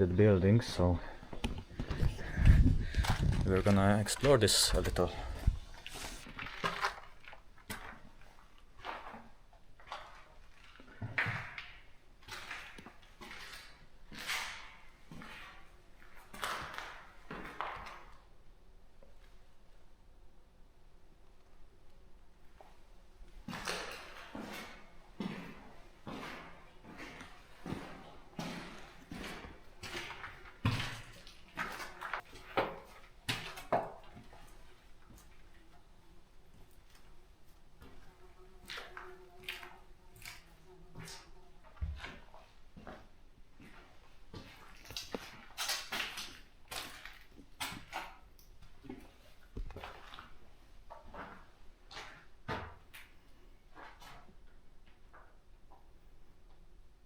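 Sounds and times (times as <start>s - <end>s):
footsteps on gritty ground: 1.0s - 10.2s, 23.5s - 35.4s
footsteps with gritty scuffs: 23.4s - 35.4s, 36.6s - 52.8s.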